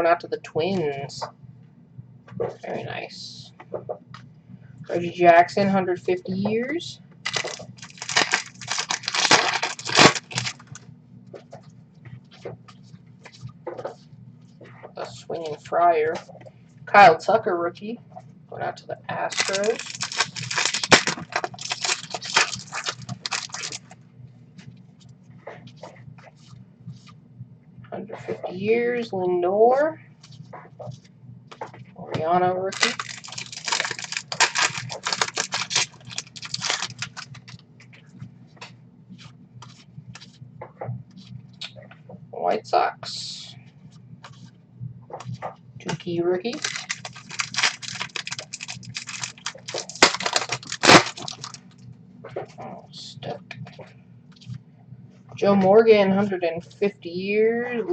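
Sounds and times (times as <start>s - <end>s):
cards rustling: 7.3s - 10.8s, 19.3s - 23.9s, 32.7s - 37.6s, 46.5s - 51.6s.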